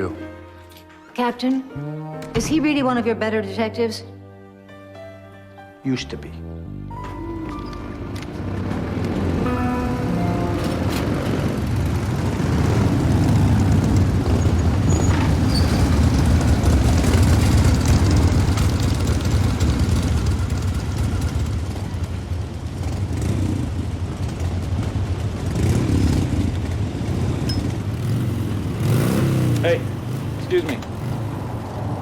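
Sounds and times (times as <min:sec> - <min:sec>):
road noise: 0:06.7 - 0:32.0
vehicle engine running: 0:07.5 - 0:31.7.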